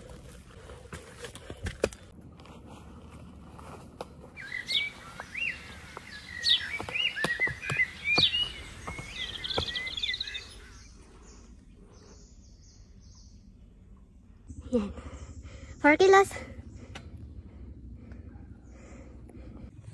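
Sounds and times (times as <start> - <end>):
forest birds chirping: 4.2 - 19.9.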